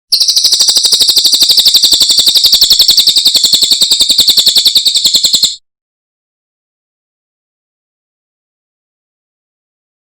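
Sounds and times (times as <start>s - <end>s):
bird singing rapid high trill: 0.1s - 5.6s.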